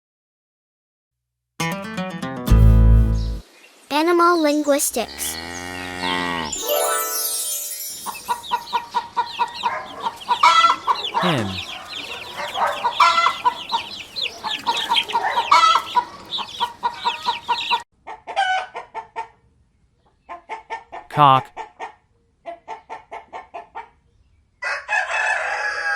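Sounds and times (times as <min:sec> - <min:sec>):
hen clucking: 0:03.9 - 0:06.5, 0:08.1 - 0:19.3
hen squawks: 0:08.3 - 0:17.8.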